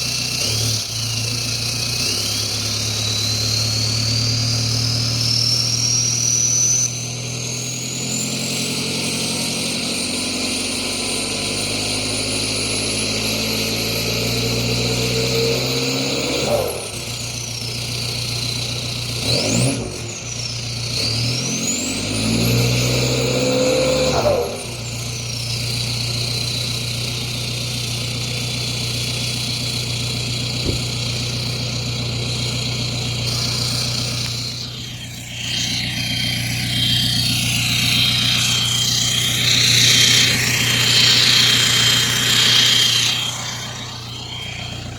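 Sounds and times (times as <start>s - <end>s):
diesel engine accelerating: 0.0s - 44.9s
high turbo whistle: 0.0s - 44.9s
noisy rush: 33.1s - 44.9s.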